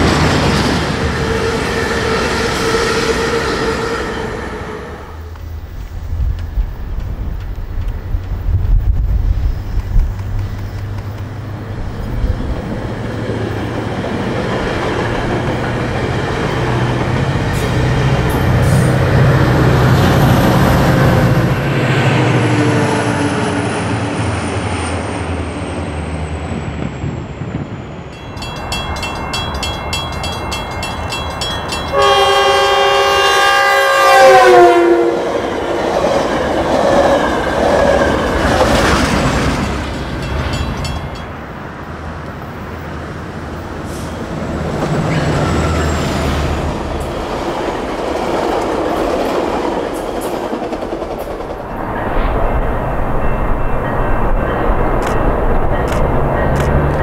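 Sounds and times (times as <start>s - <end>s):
diesel locomotive engine drone: 0.0s - 57.0s
train coaches rumbling and clattering: 0.0s - 57.0s
multi-note train horn: 2.7s - 5.3s, 31.9s - 35.3s
bell ringing rapidly: 28.2s - 32.4s, 40.2s - 41.3s.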